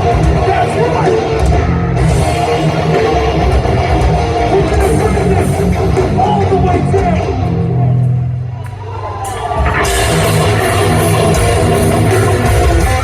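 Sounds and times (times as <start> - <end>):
punk band playing live: 0.0 - 13.0.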